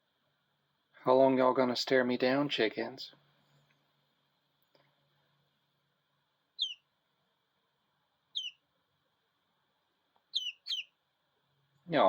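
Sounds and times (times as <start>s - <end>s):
chick peeping: 6.6s - 6.9s, 8.3s - 8.7s, 10.2s - 11.0s.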